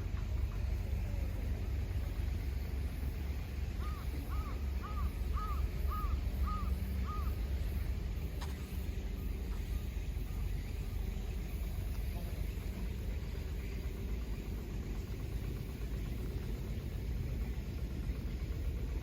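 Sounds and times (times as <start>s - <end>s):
steady low rumble: 0.0s - 19.0s
bird calling: 3.8s - 7.8s.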